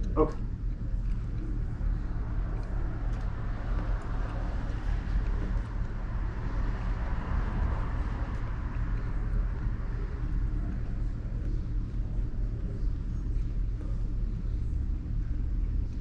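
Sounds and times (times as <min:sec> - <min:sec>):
pickup truck driving: 0:01.6 - 0:11.5.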